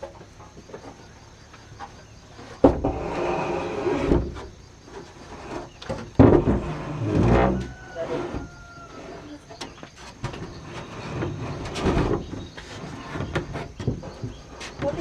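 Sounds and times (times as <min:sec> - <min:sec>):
wood rattling and scraping: 0:00.0 - 0:15.0
wood knocking: 0:01.8 - 0:03.0, 0:05.6 - 0:08.8.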